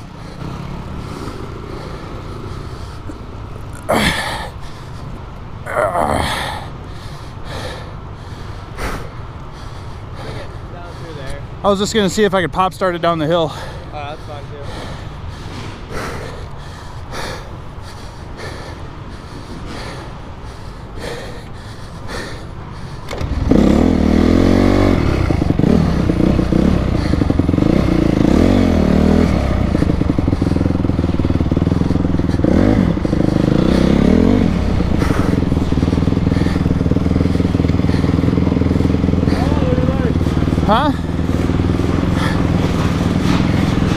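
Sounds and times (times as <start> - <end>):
motorcycle engine revving: 0.0 - 5.0, 22.8 - 43.9.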